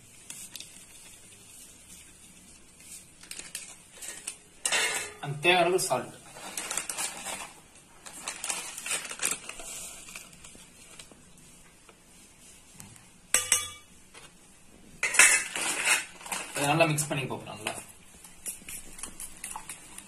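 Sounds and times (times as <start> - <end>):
steel utensils and bowls clinking: 4.6 - 5.3, 13.3 - 13.9.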